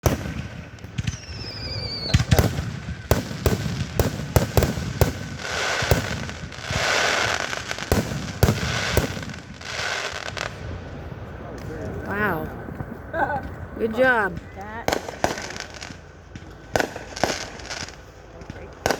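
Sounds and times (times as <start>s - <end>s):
rising firework whistle: 0.0s - 10.7s
hissing firework burst: 0.0s - 10.9s, 14.9s - 18.9s
fireworks bangs: 0.0s - 18.9s.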